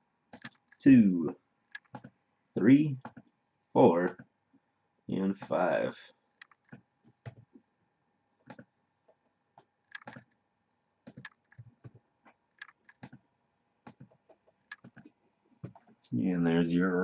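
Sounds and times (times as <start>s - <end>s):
computer mouse clicking: 0.3s - 0.8s, 1.6s - 2.2s, 6.4s - 7.5s, 8.4s - 10.4s, 11.0s - 13.2s, 13.8s - 16.0s
keyboard keys clicking: 1.7s - 2.1s, 9.9s - 10.4s, 11.0s - 12.0s, 13.9s - 15.9s.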